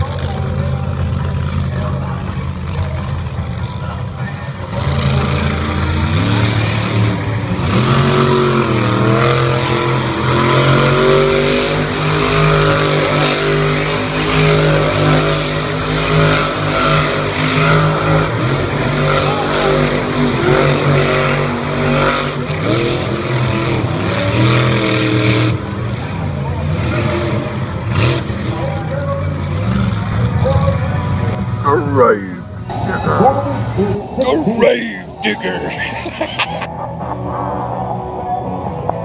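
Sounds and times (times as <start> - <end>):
monster truck engine revving: 0.0 - 30.4.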